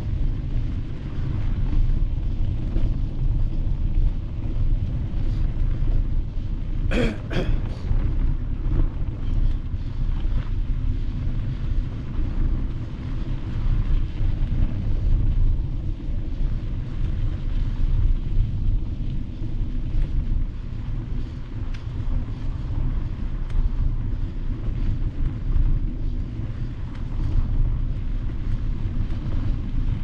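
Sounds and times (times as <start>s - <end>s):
bike riding on gravel: 0.0s - 30.0s
wind buffeting microphone: 0.0s - 30.0s.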